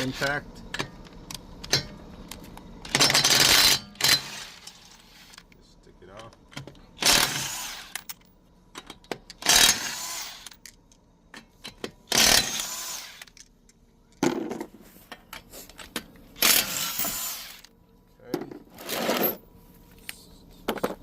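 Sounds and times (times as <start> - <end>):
impact wrench spinning lug nuts: 2.8 - 5.4, 7.0 - 8.3, 9.3 - 10.7, 11.4 - 13.4, 16.4 - 17.7, 18.7 - 19.4.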